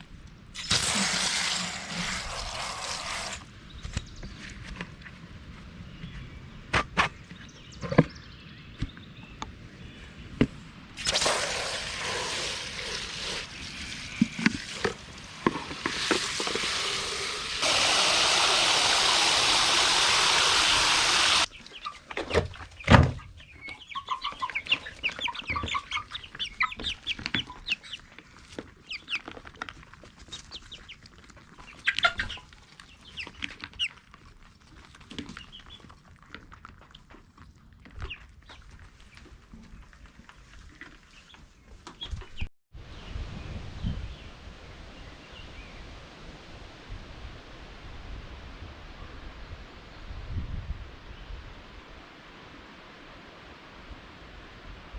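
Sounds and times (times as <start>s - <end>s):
chickens clucking: 20.8s - 42.4s.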